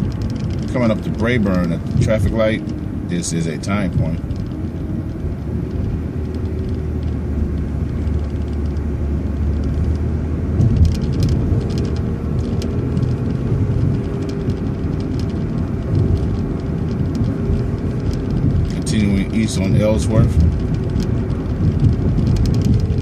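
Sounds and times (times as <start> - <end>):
bus engine humming: 0.0 - 23.0.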